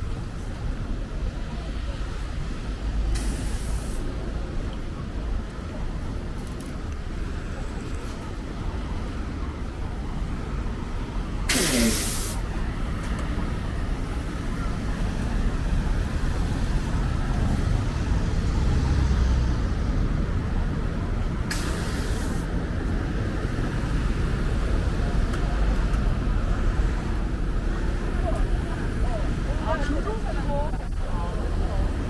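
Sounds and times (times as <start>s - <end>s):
traffic engines rumbling: 0.0s - 32.0s
bus air brakes hissing: 3.1s - 4.2s, 11.5s - 12.6s, 21.5s - 22.6s.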